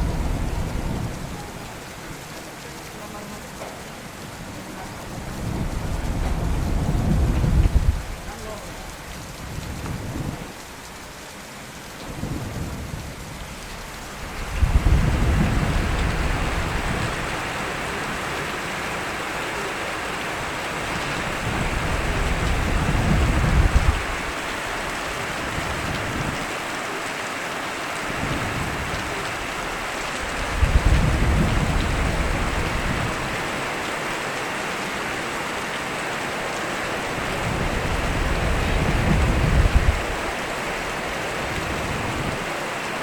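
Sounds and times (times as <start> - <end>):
low thunder rolling: 0.0 - 1.9, 4.8 - 10.6, 12.1 - 26.5, 28.1 - 33.7, 37.1 - 42.5
heavy rain: 0.0 - 43.0.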